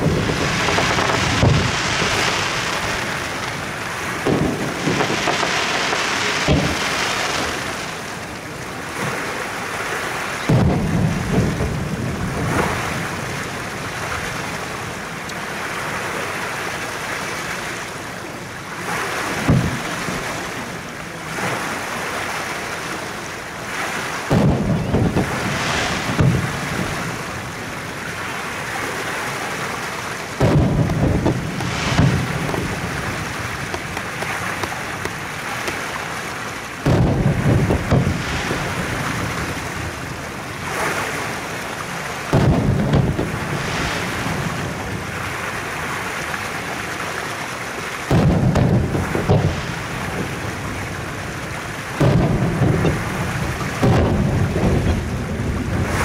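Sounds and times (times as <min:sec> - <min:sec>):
fireworks booming: 0:00.0 - 0:09.2, 0:10.4 - 0:14.7, 0:18.8 - 0:20.5, 0:24.2 - 0:28.7, 0:30.3 - 0:36.0, 0:36.8 - 0:45.8, 0:48.1 - 0:56.0
rumble of distant bursts: 0:30.3 - 0:35.4, 0:36.8 - 0:41.3.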